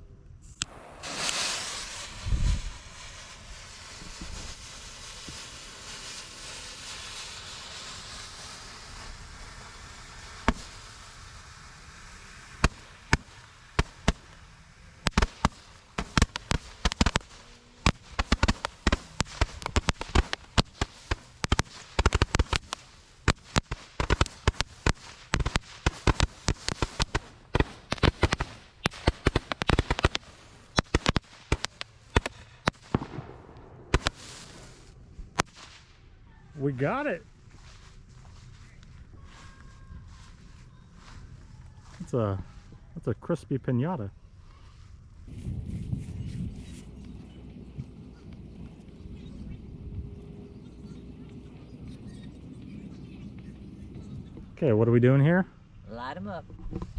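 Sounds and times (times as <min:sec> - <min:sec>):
faint hiss: 0:00.0 - 0:55.9
firecrackers banging: 0:00.6 - 0:35.9, 0:45.3 - 0:54.6.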